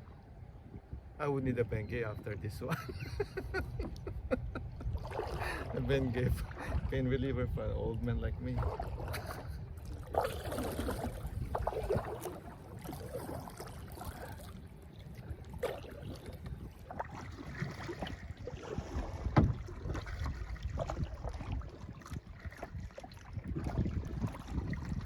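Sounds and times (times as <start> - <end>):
wind rumble on microphone: 0.0 - 25.0
paddle splashing in water: 3.7 - 7.0, 8.3 - 25.0.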